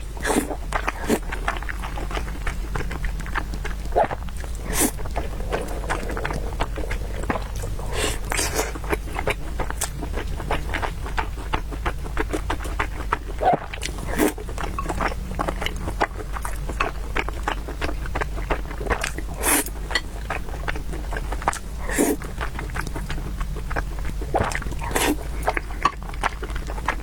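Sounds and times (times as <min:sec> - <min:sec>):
person chewing noodles: 0:00.0 - 0:27.0.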